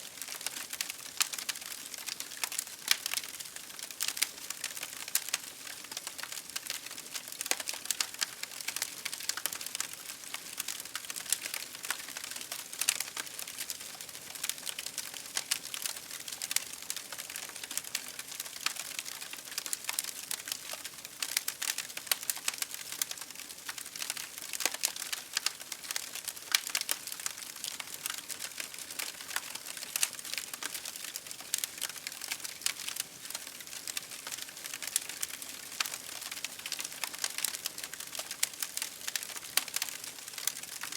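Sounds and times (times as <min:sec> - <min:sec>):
campfire crackling: 0:00.2 - 0:40.9.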